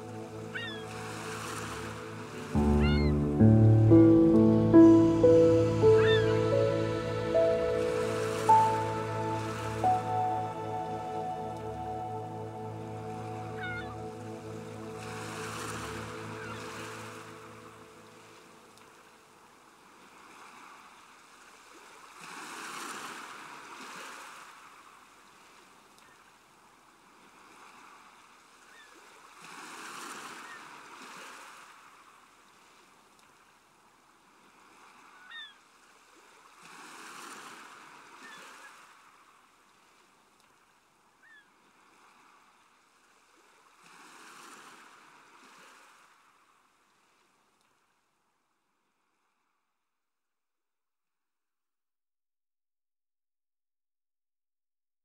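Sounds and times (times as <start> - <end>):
faint ocean waves: 0.0 - 48.1
short high chirps: 2.6 - 12.5.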